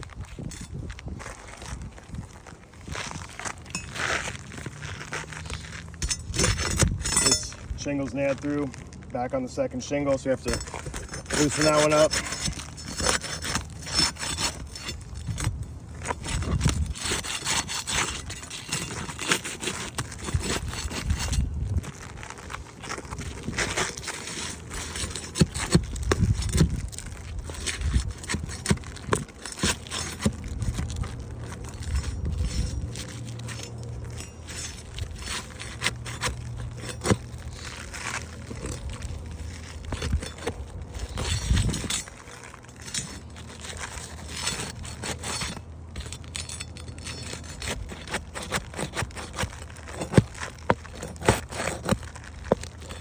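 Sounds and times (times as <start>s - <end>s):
metal tool scraping shingles: 0.0s - 53.0s
sharp metal clinks: 6.0s - 7.6s.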